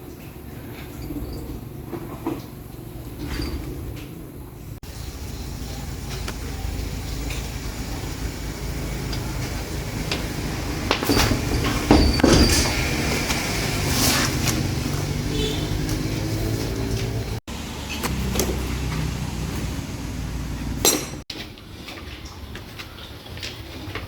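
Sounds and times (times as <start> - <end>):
metal knocks and clanks: 10.1 - 13.3.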